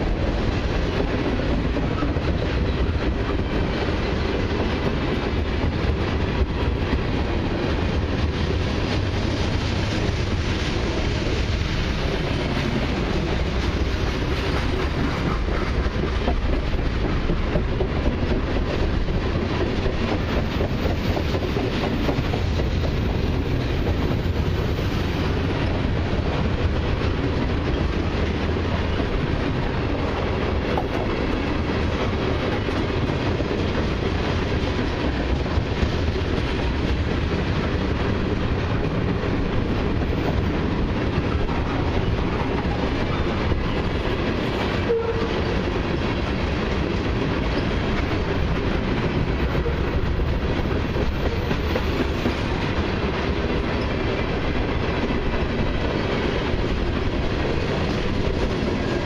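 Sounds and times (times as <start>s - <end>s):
wheels clacking over rail joints: 0.0s - 24.5s
steel wheels rumbling on rail: 0.0s - 59.0s.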